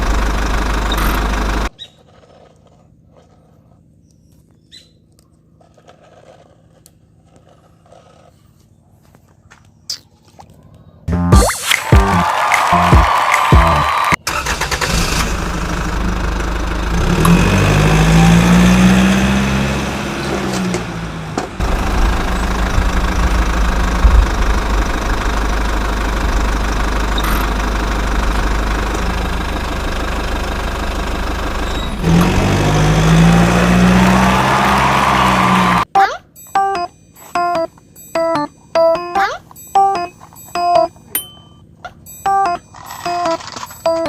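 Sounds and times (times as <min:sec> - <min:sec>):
engine running and revving: 0:00.0 - 0:01.8, 0:12.1 - 0:35.9.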